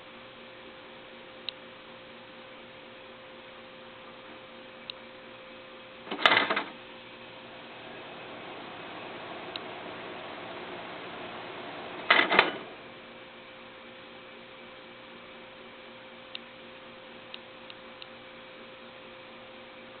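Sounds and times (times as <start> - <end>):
ventilation fan humming: 0.0 - 20.0
light ticks: 17.3 - 18.2.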